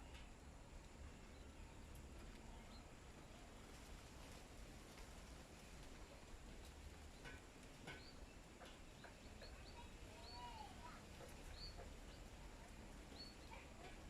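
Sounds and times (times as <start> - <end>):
small birds chirping: 7.0 - 14.0.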